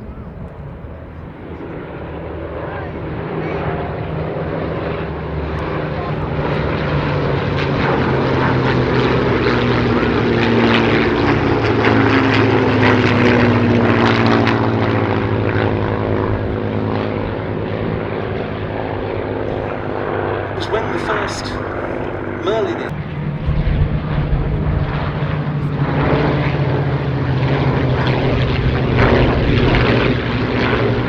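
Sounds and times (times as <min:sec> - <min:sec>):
propeller plane flying past: 0:00.0 - 0:31.0.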